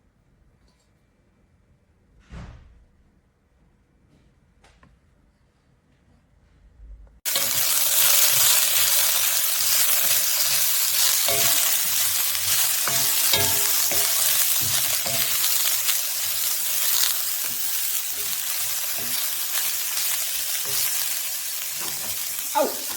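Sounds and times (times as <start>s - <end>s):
food sizzling in a wok: 7.3s - 22.9s.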